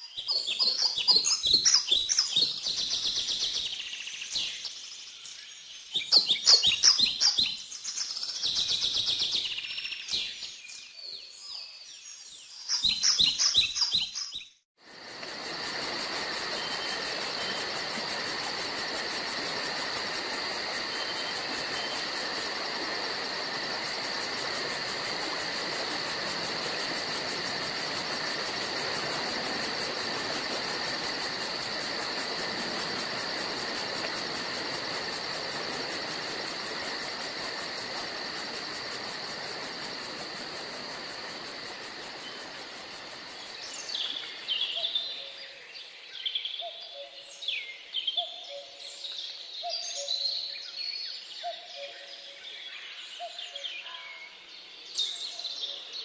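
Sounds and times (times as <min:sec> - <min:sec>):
insect drone: 0:14.8 - 0:56.0
steady hiss: 0:14.9 - 0:45.9.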